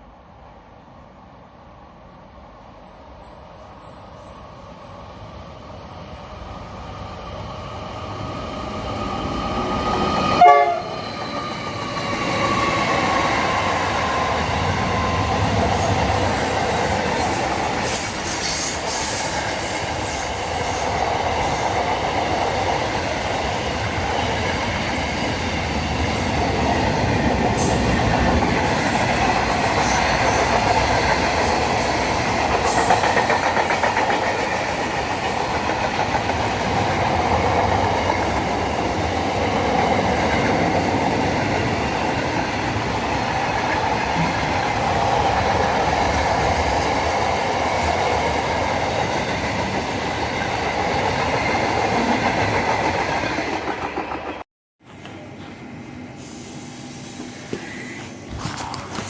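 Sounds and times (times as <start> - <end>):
train cars rumble and clatter: 0.0 - 56.1
train horn: 10.3 - 11.0.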